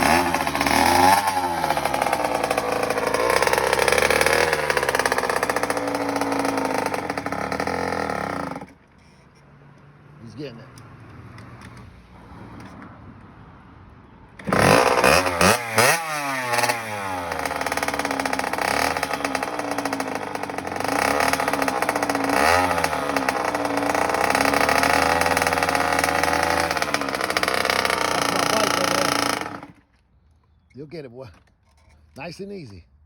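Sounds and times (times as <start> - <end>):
two-stroke dirt bike engine revving: 0.0 - 8.8, 14.4 - 29.8.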